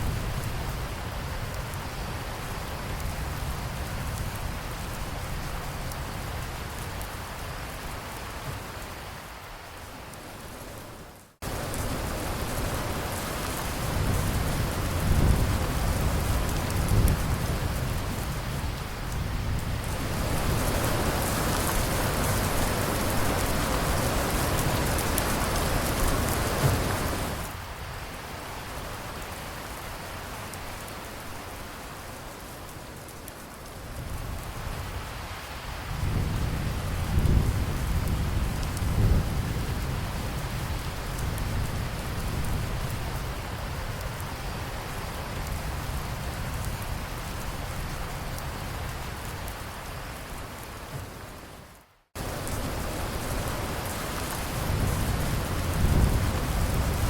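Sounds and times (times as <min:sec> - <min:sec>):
steady rain: 0:00.0 - 0:57.0
low rolling thunder: 0:11.4 - 0:27.5, 0:35.9 - 0:44.1, 0:52.2 - 0:57.0.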